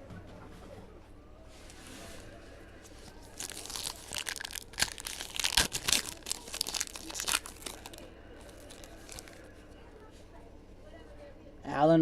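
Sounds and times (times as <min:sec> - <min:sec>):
wrapper tearing and crinkling: 0:03.2 - 0:09.4.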